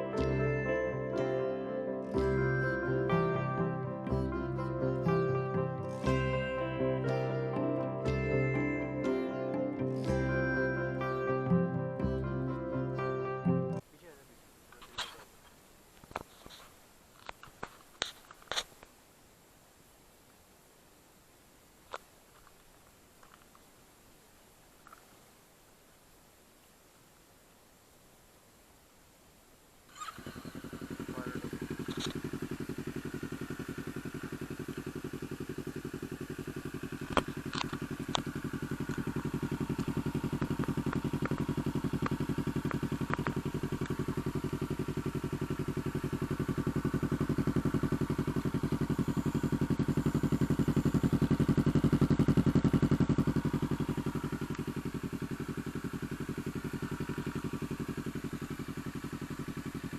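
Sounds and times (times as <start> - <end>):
motorcycle engine idling: 2.0 - 13.8, 29.9 - 59.9.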